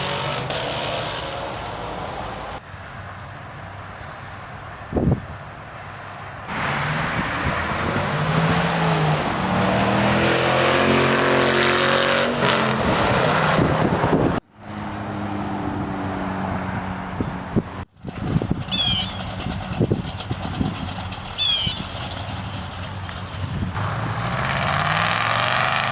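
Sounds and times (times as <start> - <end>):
car engine starting and revving: 0.0 - 2.6, 6.5 - 25.9
steady engine hum: 13.6 - 25.9.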